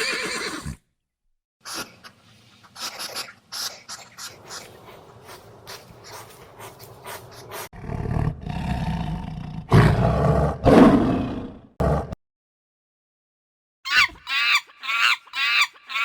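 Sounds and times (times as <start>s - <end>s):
lion roaring: 7.6s - 12.2s.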